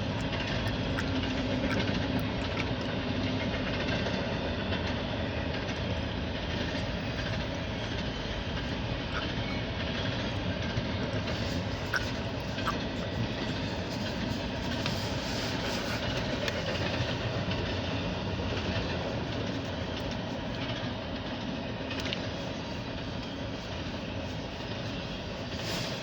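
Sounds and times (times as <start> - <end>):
faint clicks: 0.0 - 3.4
steel wheels on rails: 0.0 - 26.0.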